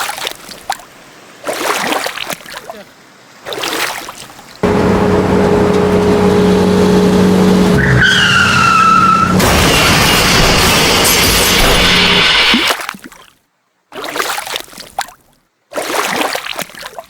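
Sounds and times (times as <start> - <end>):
water splashing and sloshing: 0.0 - 17.0
steady engine drone: 4.6 - 12.7
tyre squeal: 4.7 - 12.7.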